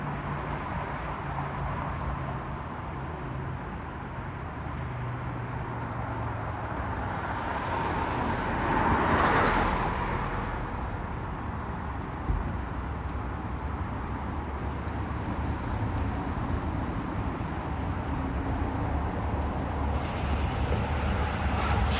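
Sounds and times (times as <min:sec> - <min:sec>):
vehicle engine humming: 0:10.9 - 0:21.9
vehicle passing close: 0:15.4 - 0:21.9.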